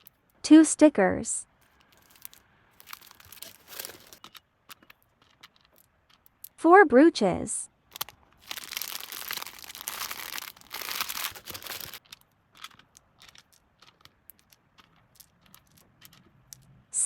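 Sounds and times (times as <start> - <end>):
packaging crinkling: 1.6 - 6.5, 7.9 - 16.3.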